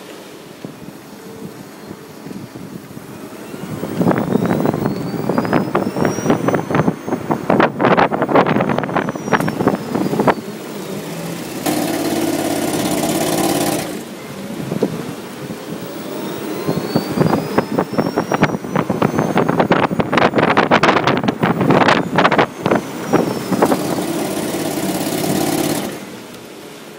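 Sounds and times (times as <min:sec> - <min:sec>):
road rumble: 0:00.0 - 0:26.9
electric car drive whine: 0:00.4 - 0:26.9
small petrol engine humming: 0:09.3 - 0:26.9.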